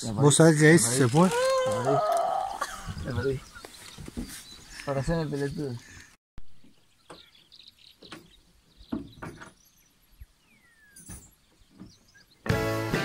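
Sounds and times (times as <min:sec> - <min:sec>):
bird chirps: 0:02.2 - 0:12.5
background music: 0:12.4 - 0:13.0.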